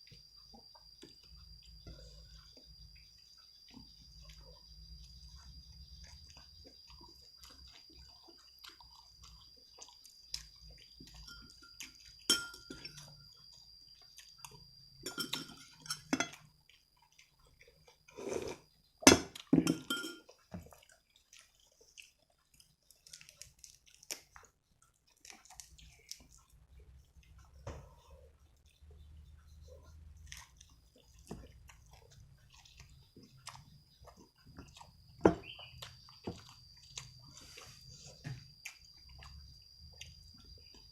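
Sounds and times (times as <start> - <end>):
person chewing: 0.0 - 15.0, 15.6 - 40.9
faint high whine: 0.0 - 20.4
dishes and utensils clinking: 11.2 - 13.1, 15.0 - 16.4, 19.1 - 20.4.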